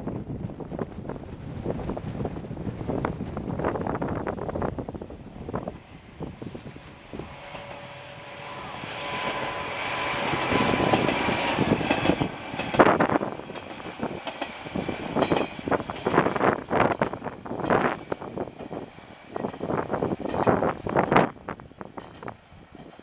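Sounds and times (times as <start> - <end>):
diesel railcar passing: 0.0 - 23.0
wind buffeting microphone: 0.0 - 23.0
steady whine: 1.2 - 14.2.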